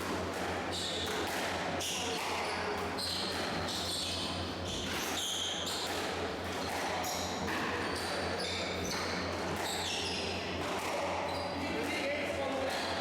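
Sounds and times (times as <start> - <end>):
squash ball hitting rackets and walls: 0.0 - 13.0
shoes squeaking on court floor: 1.8 - 11.8.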